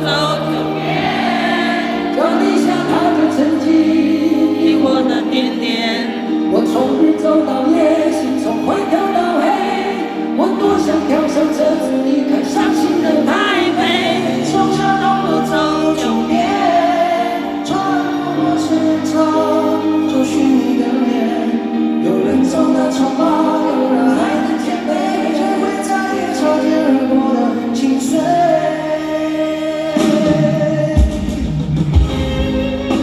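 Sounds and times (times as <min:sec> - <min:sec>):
person singing: 0:00.0 - 0:33.0
drums: 0:29.8 - 0:33.0.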